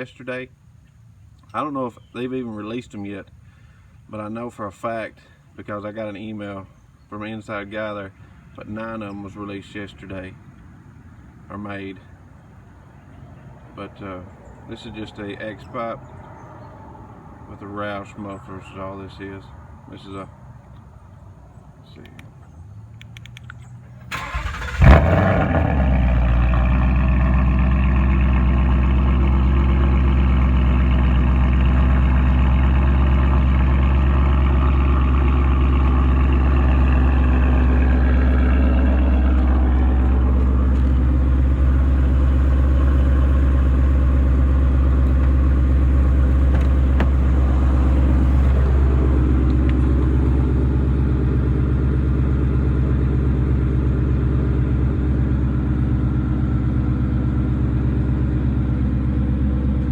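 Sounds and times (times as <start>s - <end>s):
car engine starting and idling: 20.5s - 59.9s.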